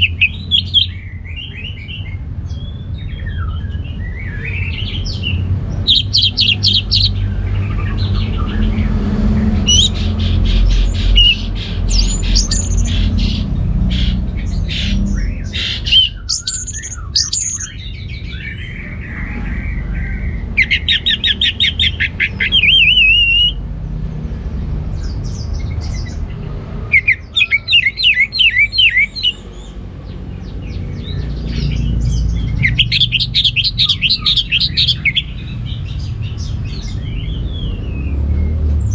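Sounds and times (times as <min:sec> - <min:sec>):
thrush singing: 0:04.5 - 0:23.6.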